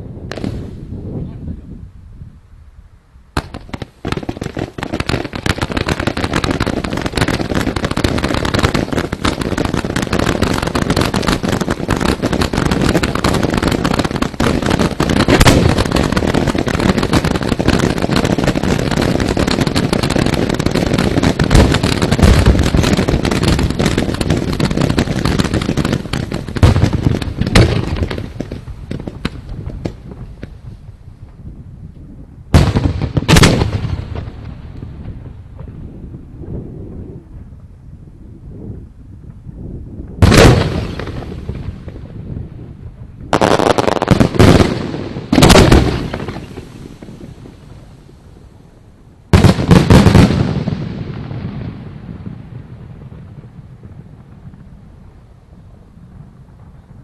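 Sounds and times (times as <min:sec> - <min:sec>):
fireworks bursting and crackling: 0:00.0 - 0:01.3, 0:03.3 - 0:57.0
loud firework bangs: 0:00.3 - 0:00.8, 0:03.4 - 0:30.7, 0:32.5 - 0:36.1, 0:40.2 - 0:42.4, 0:43.3 - 0:48.0, 0:49.3 - 0:54.5.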